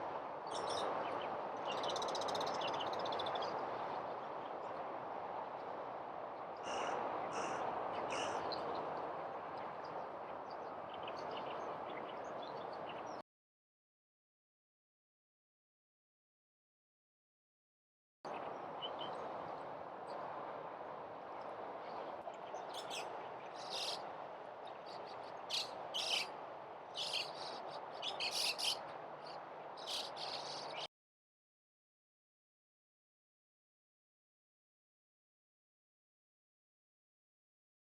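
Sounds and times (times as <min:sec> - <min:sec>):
outdoor background hiss: 0:18.3 - 0:30.9.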